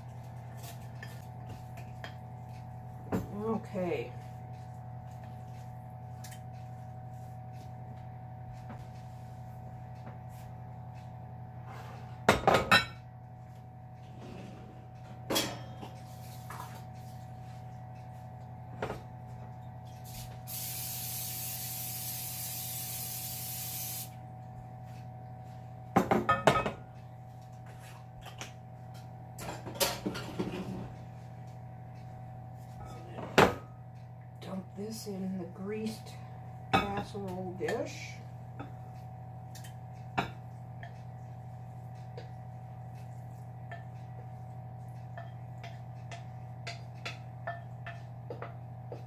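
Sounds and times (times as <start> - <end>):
cooking spray hissing: 20.0 - 24.2.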